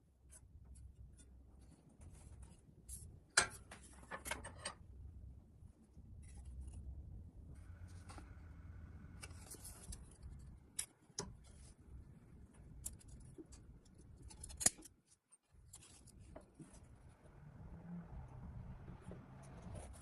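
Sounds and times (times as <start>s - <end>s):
light scraping of small parts: 9.1s - 17.2s.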